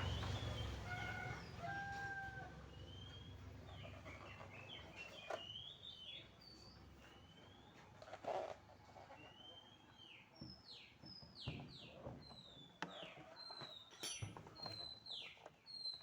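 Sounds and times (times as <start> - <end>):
rooster crowing: 0.8 - 2.6.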